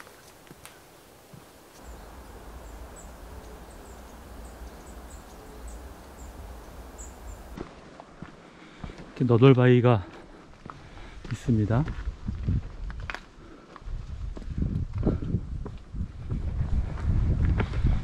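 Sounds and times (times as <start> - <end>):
small birds chirping: 0.0 - 7.6
steady low rumble: 0.0 - 7.6.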